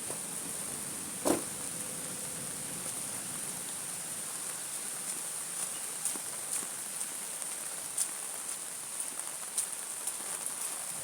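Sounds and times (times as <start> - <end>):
steady rain hissing: 0.0 - 11.0.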